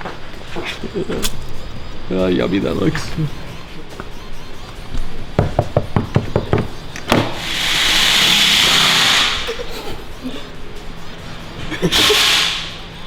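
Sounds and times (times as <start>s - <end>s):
loud steady hiss: 7.1s - 9.7s, 11.8s - 13.0s.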